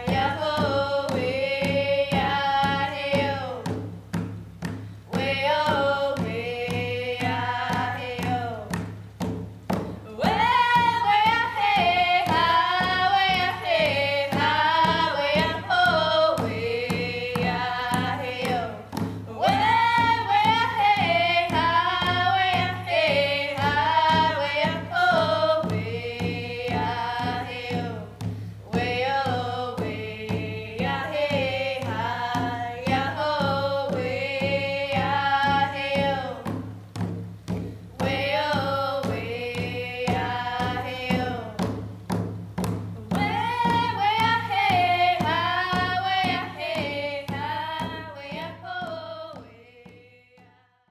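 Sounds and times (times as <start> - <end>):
women singing together: 0.0 - 3.9, 4.7 - 8.9, 9.7 - 50.7
frame drum beat: 0.0 - 50.6.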